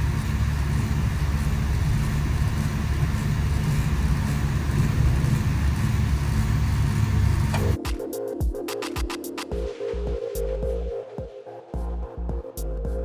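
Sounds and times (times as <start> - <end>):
lorry diesel engine running: 0.0 - 7.8
road noise: 0.0 - 7.8.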